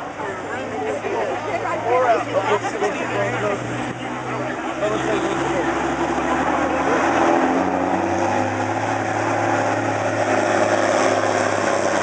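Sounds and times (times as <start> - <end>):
diesel pickup engine under load: 5.4 - 12.0.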